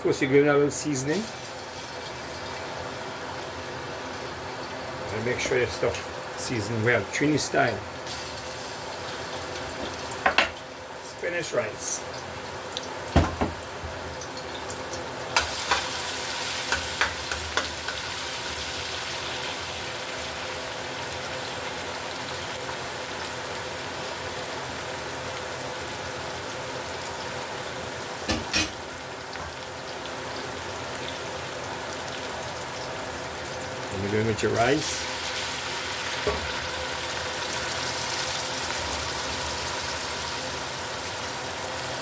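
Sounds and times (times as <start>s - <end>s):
food sizzling in hot oil: 0.7s - 42.0s
utensil clattering against pot: 28.3s - 28.8s.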